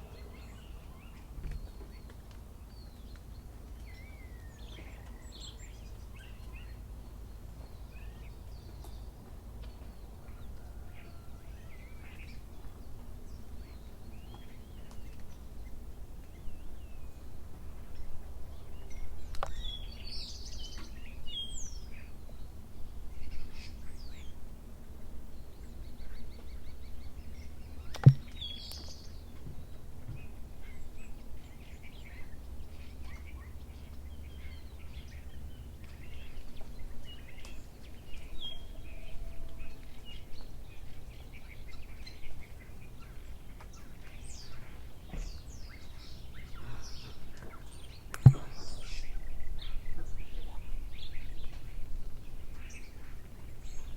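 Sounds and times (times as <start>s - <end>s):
small birds chirping: 0.0s - 53.9s
sharp click or knock: 28.0s - 28.4s, 48.2s - 48.5s.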